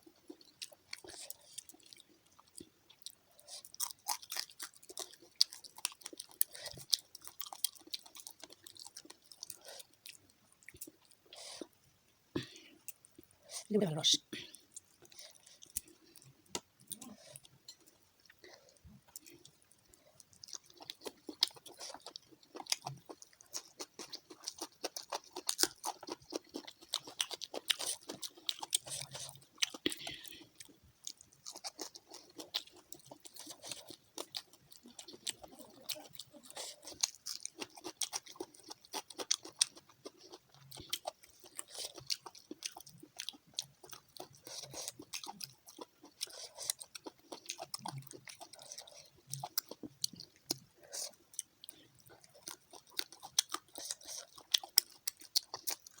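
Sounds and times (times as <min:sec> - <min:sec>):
chewing and crunching fried fish: 0:00.0 - 0:56.0.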